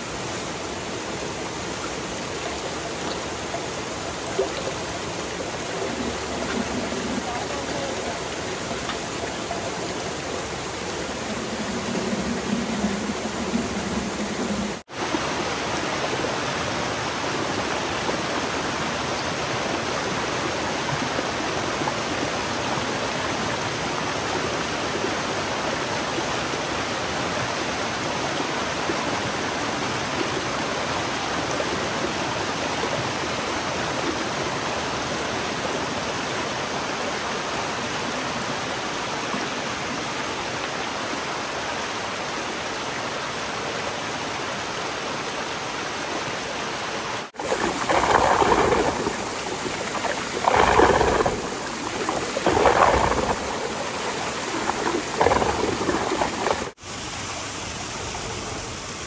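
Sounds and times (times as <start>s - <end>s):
water splashing: 0.0s - 30.9s, 47.2s - 58.7s
water rushing: 0.0s - 59.0s.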